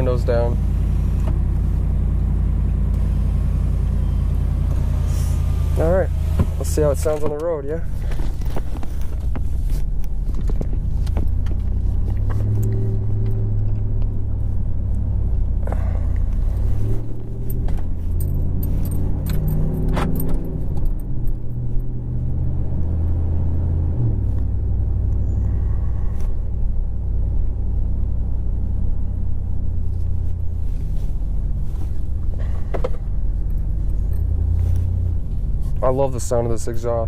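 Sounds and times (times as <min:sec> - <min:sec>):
truck exhaust note: 0:00.0 - 0:37.0.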